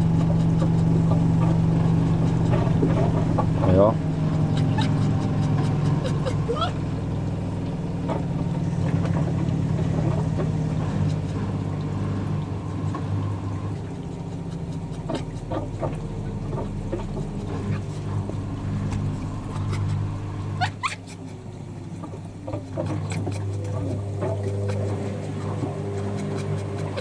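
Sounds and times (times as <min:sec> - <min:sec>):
washing machines humming: 0:00.0 - 0:27.0
faint high squeaks: 0:04.4 - 0:07.0.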